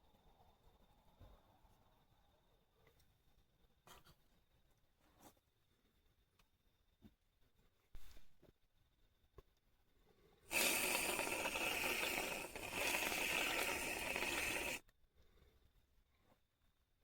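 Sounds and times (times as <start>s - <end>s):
loud steady hiss: 10.5s - 14.8s.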